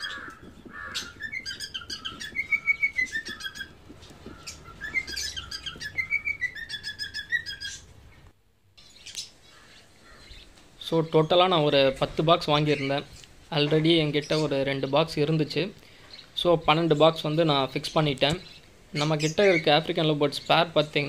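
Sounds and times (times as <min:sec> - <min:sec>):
birds whistling: 0:00.0 - 0:08.2, 0:17.9 - 0:20.5
birds chirping: 0:00.0 - 0:21.0.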